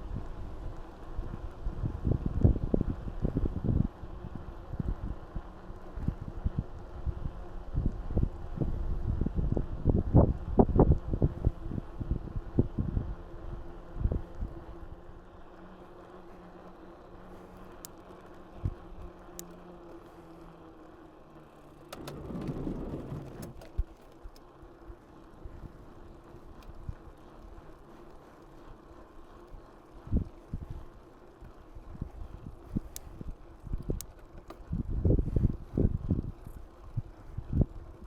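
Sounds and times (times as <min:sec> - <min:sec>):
bike tyres rolling: 0:13.6 - 0:38.0.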